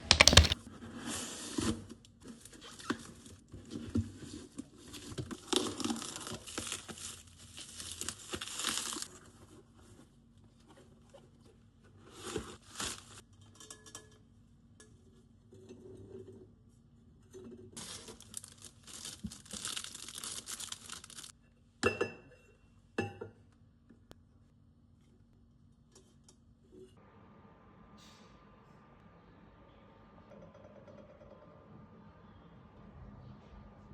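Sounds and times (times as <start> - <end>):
sharp knocks: 0.0 - 0.6
packaging tearing and crinkling: 5.6 - 9.1, 17.8 - 21.3.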